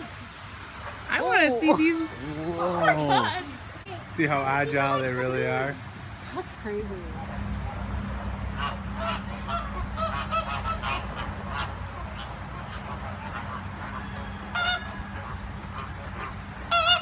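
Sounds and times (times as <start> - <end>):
birds honking: 8.5 - 17.0.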